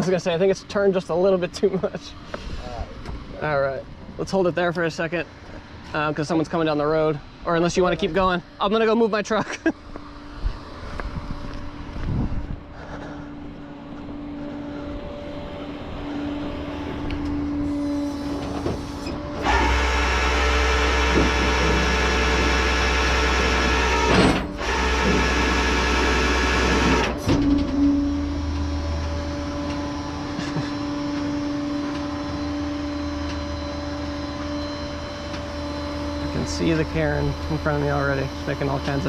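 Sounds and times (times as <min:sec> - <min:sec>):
tow truck engine running: 0:09.8 - 0:39.0.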